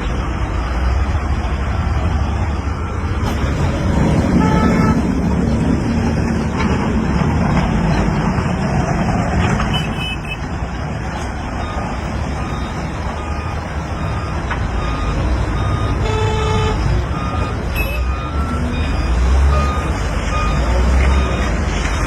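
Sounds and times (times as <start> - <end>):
reverse warning beeps: 0.0 - 5.0, 11.5 - 22.0
heavy vehicle engine rumbling: 0.0 - 22.0.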